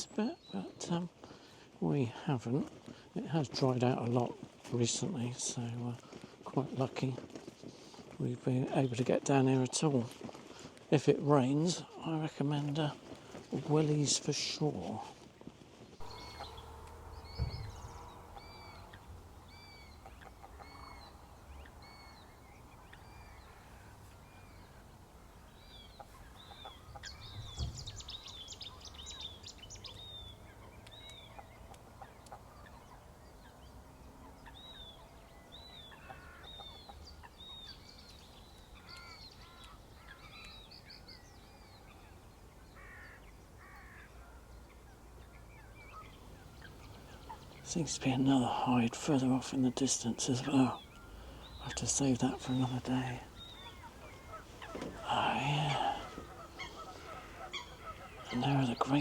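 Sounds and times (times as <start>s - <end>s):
small birds chirping: 0.0s - 59.0s
faint low rumble: 16.0s - 23.6s.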